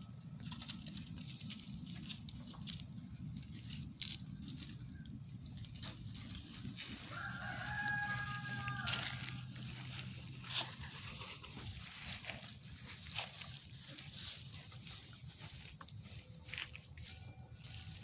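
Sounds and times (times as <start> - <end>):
rooster crowing: 6.7 - 10.1, 16.9 - 18.0.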